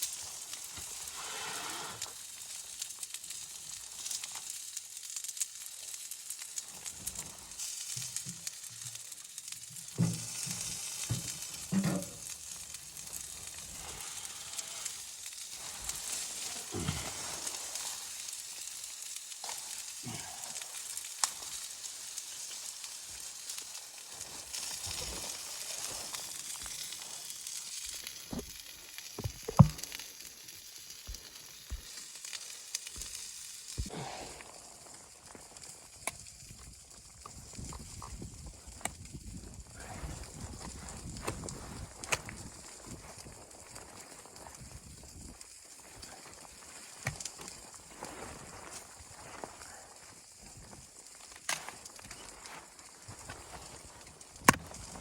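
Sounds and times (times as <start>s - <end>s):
food sizzling in a hot pan: 0.0s - 55.0s
utensil knocking and scraping: 29.2s - 29.8s.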